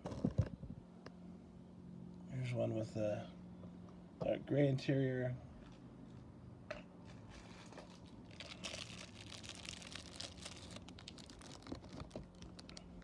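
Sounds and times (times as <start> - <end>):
low steady hum: 0.0 - 13.0
plastic items crinkling: 7.3 - 13.0.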